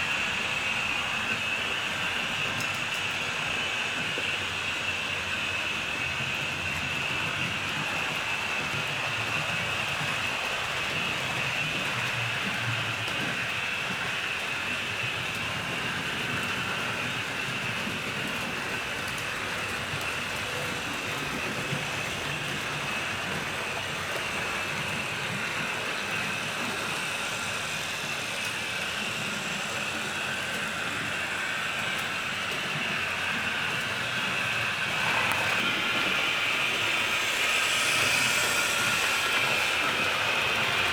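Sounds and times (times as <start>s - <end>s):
model train wheels rumbling: 0.0s - 40.9s
motor whine: 33.3s - 40.9s.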